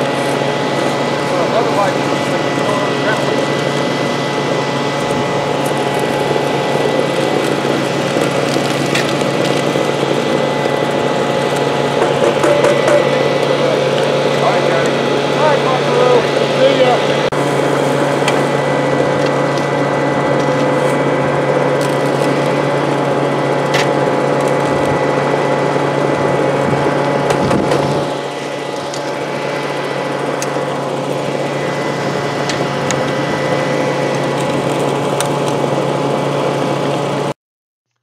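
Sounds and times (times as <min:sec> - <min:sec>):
small gasoline engine running: 0:00.0 - 0:37.4
gravel and rock clicking: 0:05.0 - 0:12.8.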